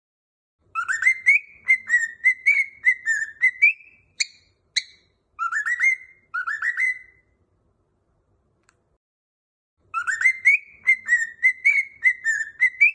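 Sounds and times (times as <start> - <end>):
bird chirps: 0.6 - 7.4, 9.8 - 12.9
cockatiel whistling: 0.7 - 7.3, 9.9 - 12.9.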